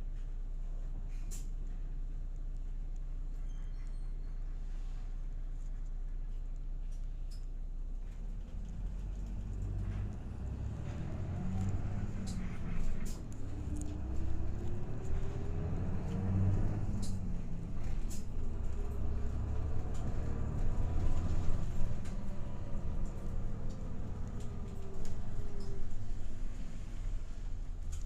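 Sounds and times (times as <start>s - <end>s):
bus engine and road rumble: 0.0s - 28.0s
bus whine: 8.2s - 28.0s.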